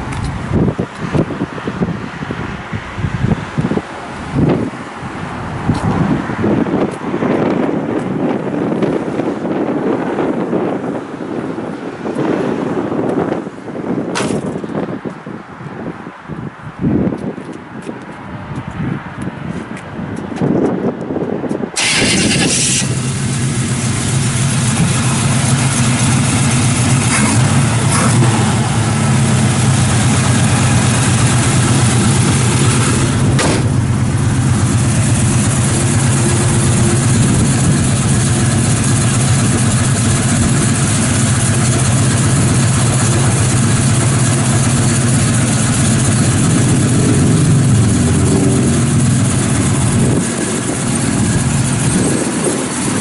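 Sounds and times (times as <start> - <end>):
car engine cranking and idling: 21.8 - 53.0.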